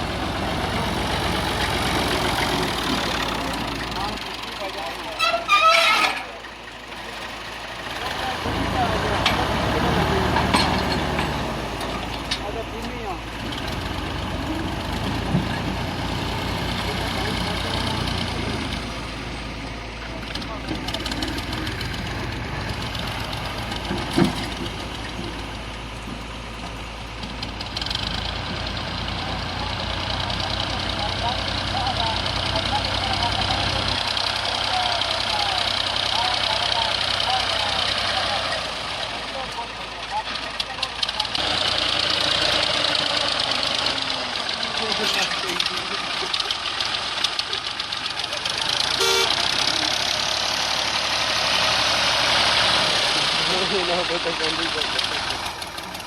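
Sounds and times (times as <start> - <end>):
diesel engine idling: 0.0 - 56.0
vehicle horn toot: 5.2 - 6.3, 48.9 - 49.6.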